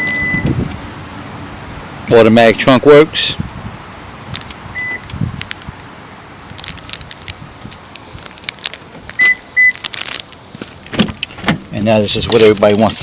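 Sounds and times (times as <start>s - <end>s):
electronic warning beeps: 0.0s - 0.5s, 4.8s - 5.1s, 9.2s - 9.8s.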